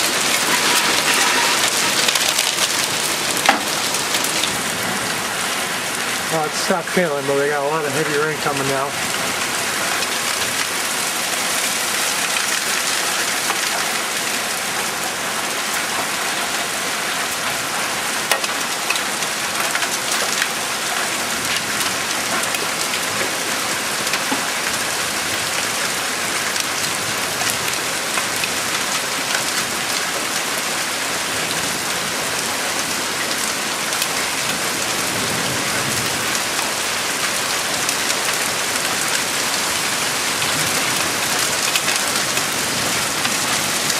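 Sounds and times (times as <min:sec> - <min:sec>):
rain drop hit: 0:00.0 - 0:15.0
heavy rain falling: 0:00.0 - 0:43.9.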